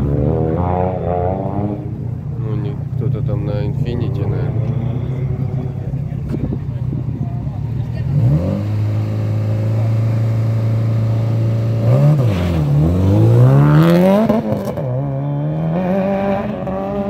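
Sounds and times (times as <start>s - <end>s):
car engine revving and launching: 8.0s - 17.0s.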